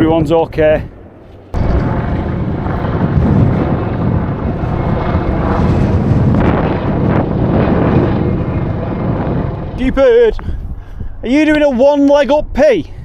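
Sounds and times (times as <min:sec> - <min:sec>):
helicopter rotor and engine: 0:00.0 - 0:11.6
wind on microphone: 0:00.0 - 0:13.0.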